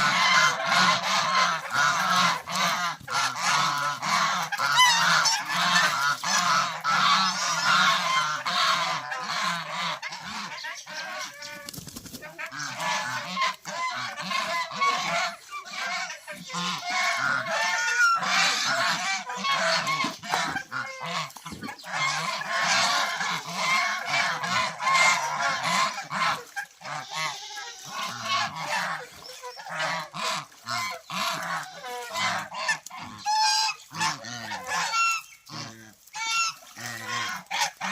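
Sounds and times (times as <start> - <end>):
geese honking: 0.0 - 37.9.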